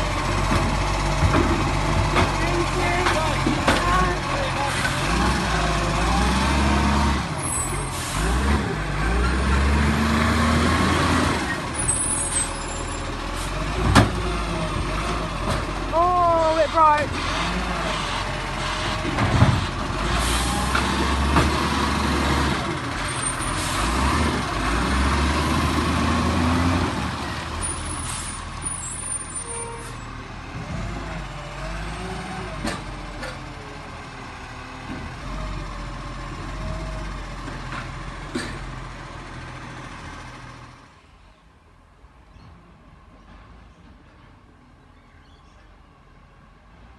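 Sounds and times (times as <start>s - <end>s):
diesel engine rumbling: 0.0s - 46.9s
sharp clunks and knocks: 0.4s - 2.4s, 13.8s - 14.2s, 18.9s - 19.8s.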